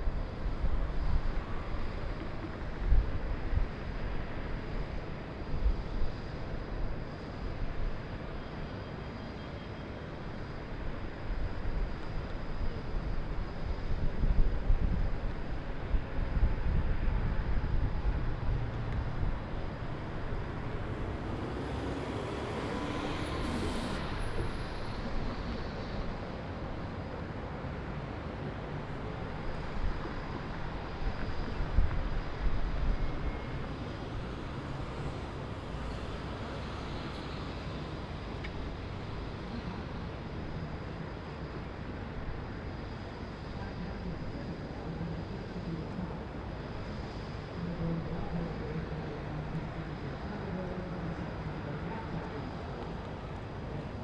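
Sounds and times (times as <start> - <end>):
distant city traffic hum: 0.0 - 54.0
vehicle passing by: 18.3 - 26.0.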